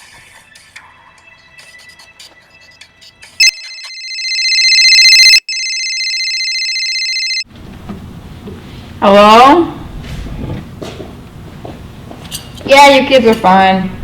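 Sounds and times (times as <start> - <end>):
warbling electronic ringtone: 3.4 - 7.4.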